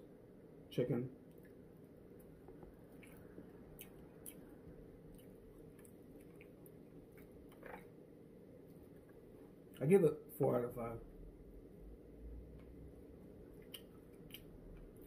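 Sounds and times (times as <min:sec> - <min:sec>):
low room hum: 0:00.0 - 0:15.0
chewing with mouth clicks: 0:02.2 - 0:07.9, 0:13.5 - 0:15.0.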